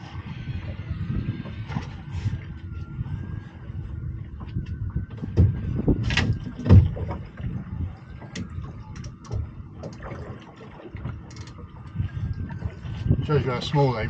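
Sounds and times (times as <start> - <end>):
water against hull: 0.0 - 14.0
wind: 0.0 - 14.0
knocks of gear on boat: 4.5 - 7.5.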